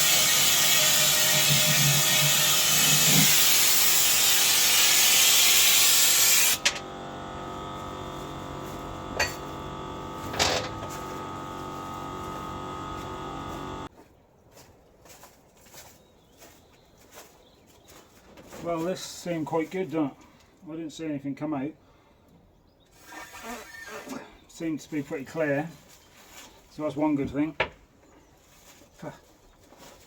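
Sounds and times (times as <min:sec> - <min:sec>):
pressure washer spraying: 0:00.0 - 0:13.9
washer motor humming: 0:01.2 - 0:13.9.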